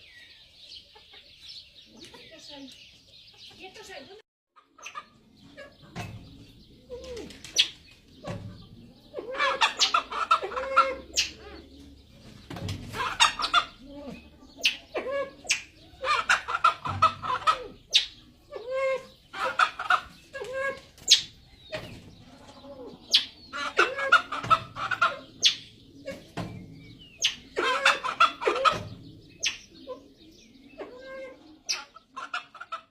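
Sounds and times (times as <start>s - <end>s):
junglefowl clucking calls: 4.6s - 12.0s, 12.9s - 26.4s, 27.2s - 30.2s, 30.8s - 32.9s.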